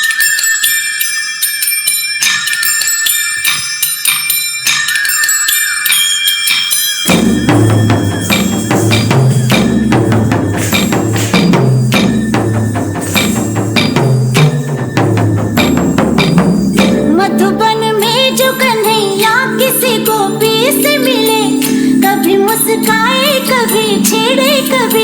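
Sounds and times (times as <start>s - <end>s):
anklet bells jingling: 0.0s - 25.0s
instrumental music with drum beat: 6.5s - 18.9s.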